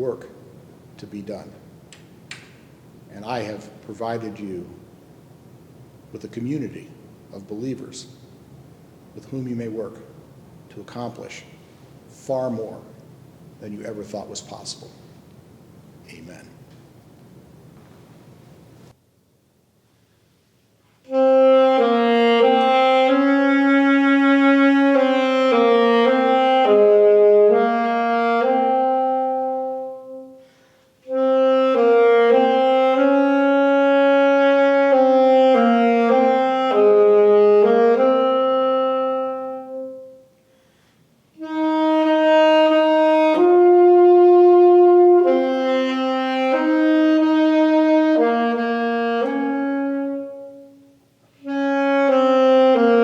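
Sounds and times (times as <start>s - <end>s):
solo wind instrument melody: 21.0s - 40.4s, 41.3s - 53.0s.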